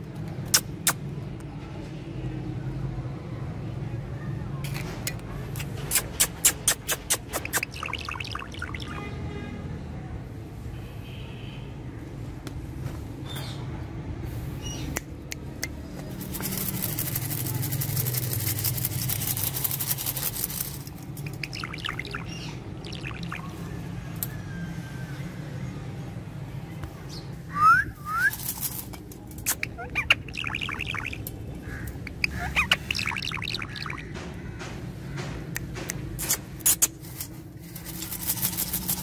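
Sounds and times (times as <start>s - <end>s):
scratchy rustling: 16.1s - 21.3s, 37.0s - 39.0s
parrot chirping and squawking: 21.2s - 23.5s, 29.4s - 34.1s.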